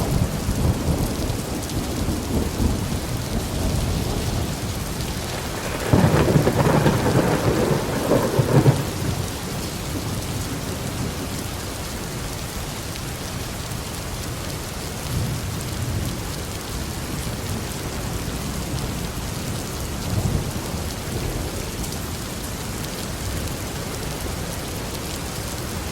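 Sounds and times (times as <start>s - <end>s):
thunder rumbling: 0.0s - 11.4s
steady rain: 0.0s - 25.9s.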